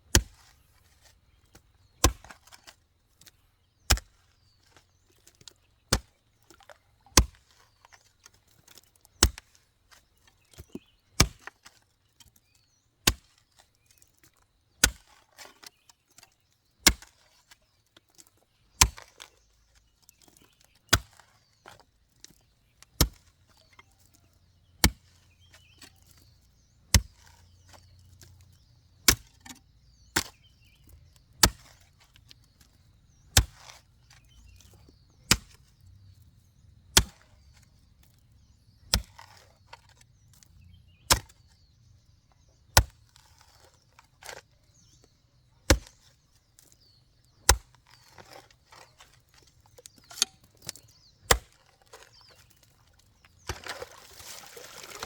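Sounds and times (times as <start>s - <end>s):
blade chopping: 53.4s - 55.0s.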